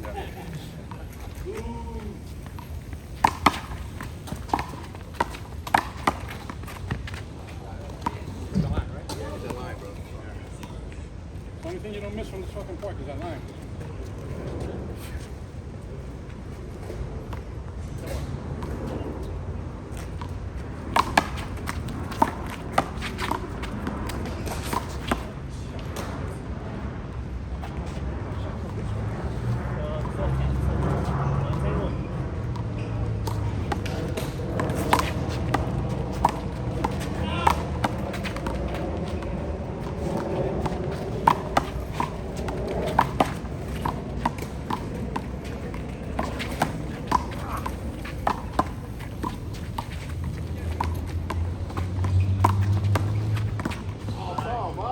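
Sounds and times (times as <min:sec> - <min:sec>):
steady low rumble: 0:30.6 - 0:52.0
sneaker footsteps: 0:32.6 - 0:54.6
handball smacking: 0:33.2 - 0:54.6.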